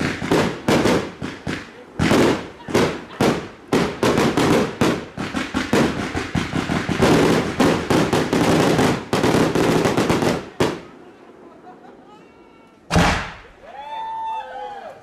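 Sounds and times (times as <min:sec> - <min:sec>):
fireworks bangs: 0:00.0 - 0:11.1, 0:12.9 - 0:13.7.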